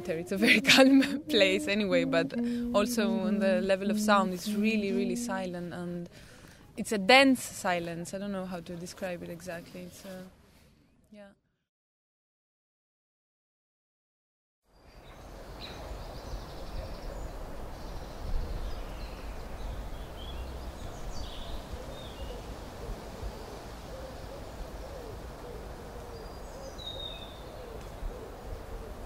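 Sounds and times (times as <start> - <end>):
low wavering bird call: 0.0 - 5.6
distant small birds chirping: 14.7 - 29.0.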